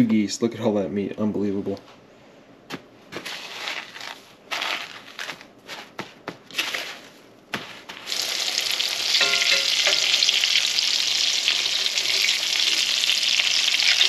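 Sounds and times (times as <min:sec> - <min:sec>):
breading crunching: 0:02.7 - 0:08.8
meat sizzling in grease: 0:08.1 - 0:14.0.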